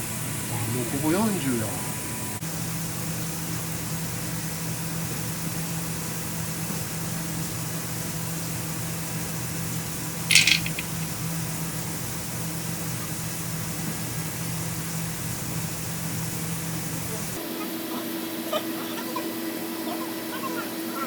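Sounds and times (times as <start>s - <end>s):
sharp metallic rattle: 10.3s - 11.1s.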